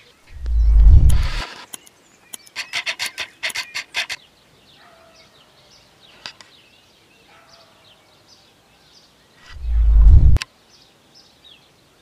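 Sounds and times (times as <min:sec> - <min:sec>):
bird harsh chatter calls: 0:00.0 - 0:07.9
faint bird calls: 0:00.0 - 0:09.8.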